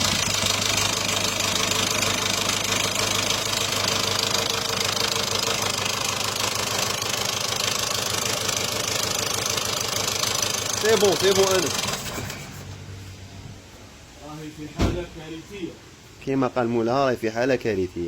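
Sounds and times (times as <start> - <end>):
diesel engine idling with knocking: 0.0 - 12.9.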